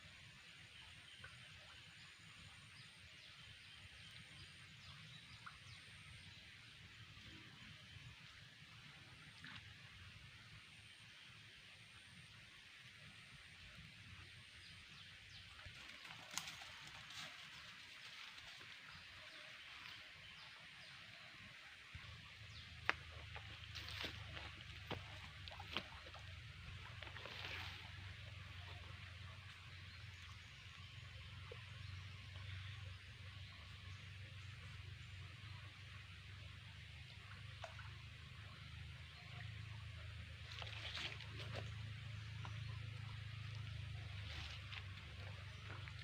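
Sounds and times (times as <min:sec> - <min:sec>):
low hiss and rumble: 0:00.0 - 0:46.0
low rumble: 0:40.4 - 0:46.0.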